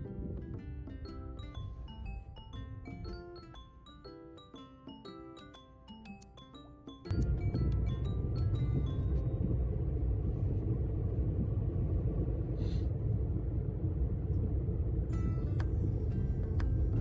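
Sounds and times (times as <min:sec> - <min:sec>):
mallet background music: 0:00.0 - 0:09.8, 0:15.2 - 0:17.0
car interior road rumble: 0:07.1 - 0:17.0.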